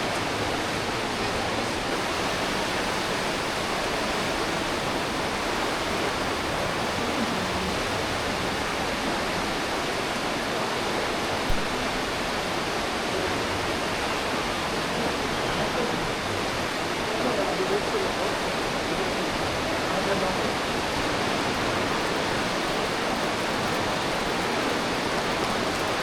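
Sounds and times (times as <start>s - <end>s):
river water rushing through gorge: 20.6s - 26.0s.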